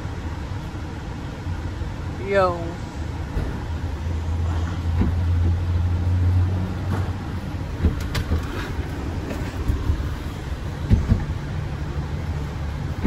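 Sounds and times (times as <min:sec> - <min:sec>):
short knocks and clunks: 0:04.5 - 0:05.7, 0:06.8 - 0:10.0, 0:10.8 - 0:11.5.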